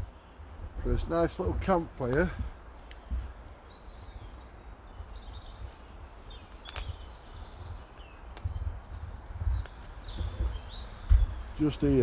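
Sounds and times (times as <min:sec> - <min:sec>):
small birds chirping: 0:00.0 - 0:12.0
sharp clicks: 0:06.6 - 0:07.0.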